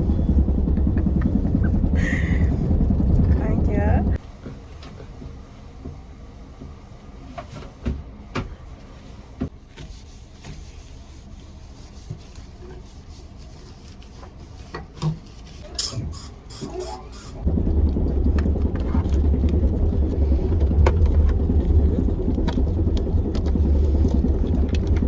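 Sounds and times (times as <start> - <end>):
loud low rumble: 0.0 - 4.2, 17.4 - 25.0
low steady rumble: 0.0 - 4.4, 15.6 - 25.0.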